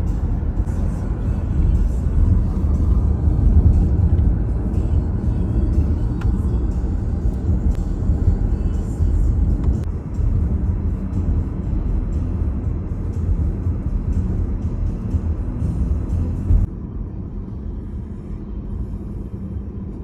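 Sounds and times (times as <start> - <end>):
car road and wind noise: 0.0 - 20.0.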